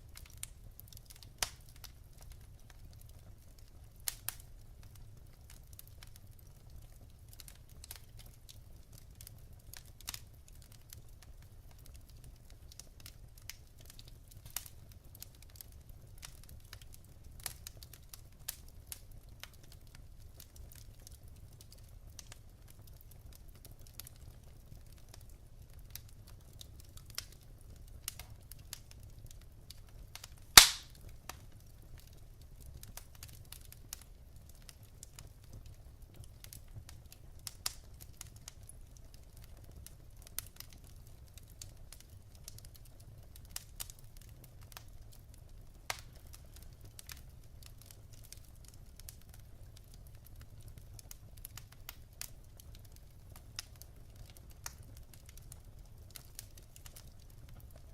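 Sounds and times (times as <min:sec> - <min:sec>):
wood fire crackling: 0:00.0 - 0:57.9
loud pop from fire: 0:30.6 - 0:31.1.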